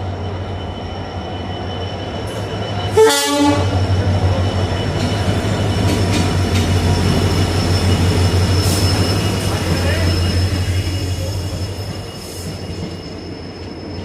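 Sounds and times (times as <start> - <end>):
passenger train rumbling: 0.0 - 14.0
train horn blast: 2.9 - 3.8.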